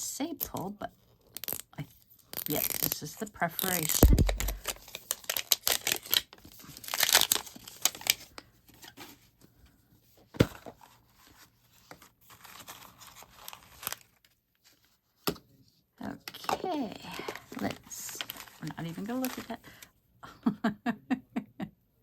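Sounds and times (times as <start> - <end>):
plastic wrapper tearing and crinkling: 1.3 - 1.6, 2.3 - 8.3, 12.3 - 14.2, 16.4 - 19.8
sharp click: 4.0 - 4.6.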